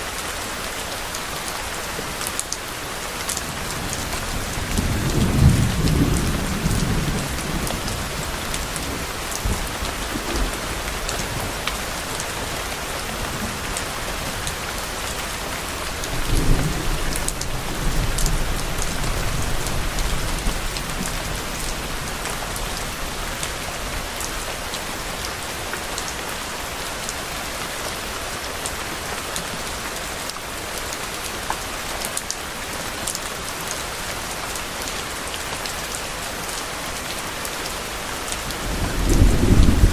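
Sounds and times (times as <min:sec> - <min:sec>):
steady rain: 0:00.0 - 0:39.9
distant thunder rumbling: 0:38.6 - 0:39.9.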